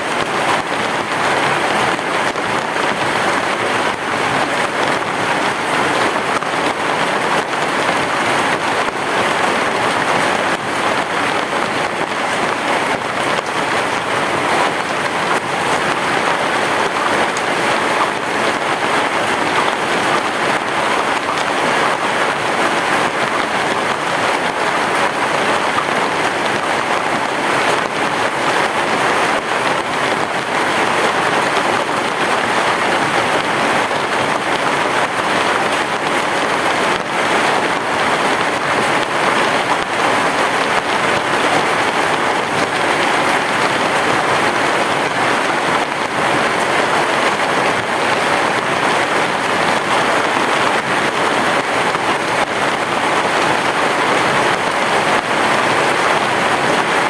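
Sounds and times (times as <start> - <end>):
heavy rain on a roof: 0.0 - 57.0.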